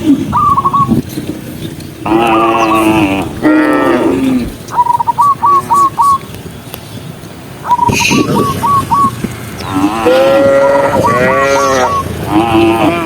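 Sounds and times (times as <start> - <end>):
short high chirping calls: 0.3 - 1.1, 4.7 - 6.7, 7.6 - 9.7
cattle mooing: 2.0 - 4.5, 9.6 - 13.0.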